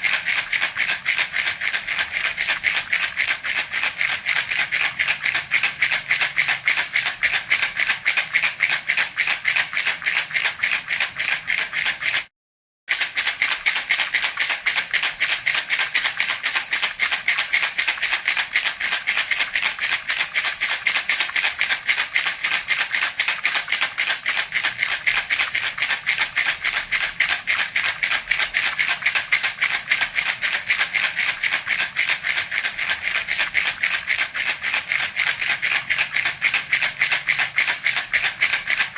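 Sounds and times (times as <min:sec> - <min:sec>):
baby rattle shaking: 0:00.0 - 0:12.3, 0:12.9 - 0:38.9.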